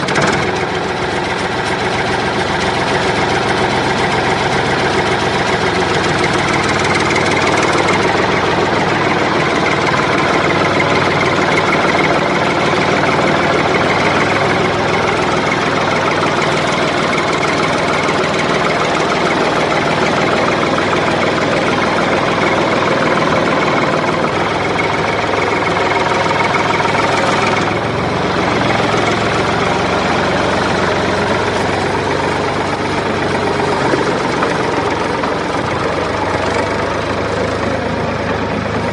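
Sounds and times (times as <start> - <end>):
motor running loudly: 0.0 - 38.9.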